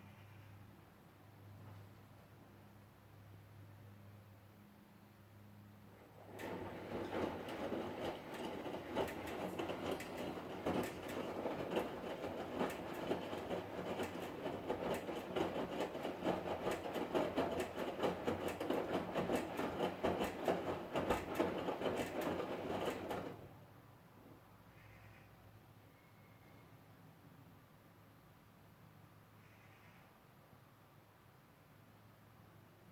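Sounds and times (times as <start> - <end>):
washing machine drum tumbling: 6.0 - 23.5.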